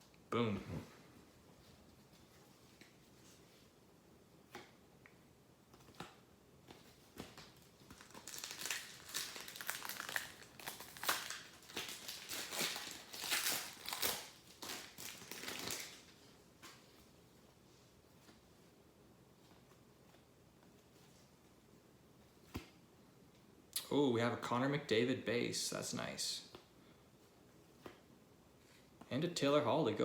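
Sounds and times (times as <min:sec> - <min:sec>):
foil wrapper crinkling: 0:07.6 - 0:16.2.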